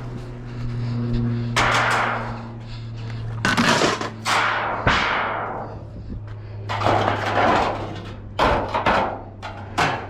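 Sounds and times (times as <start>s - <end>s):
scrap metal clanking and banging: 1.5s - 6.0s, 6.6s - 10.0s.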